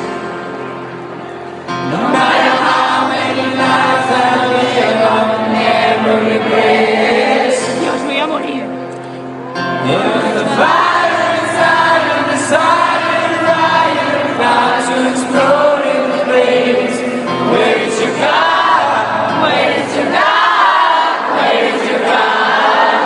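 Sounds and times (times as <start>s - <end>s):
live band music: 0.0s - 15.7s
person singing: 9.6s - 20.6s.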